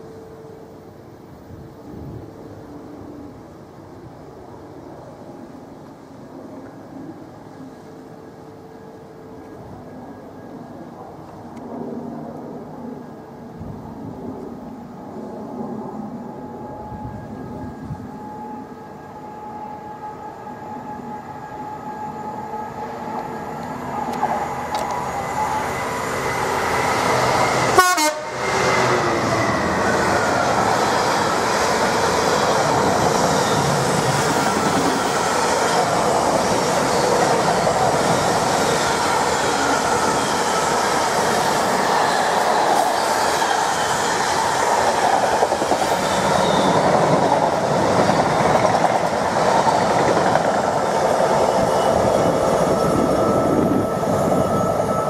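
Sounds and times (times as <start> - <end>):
diesel locomotive passing: 0.0 - 55.0
steady warning tones: 16.1 - 55.0.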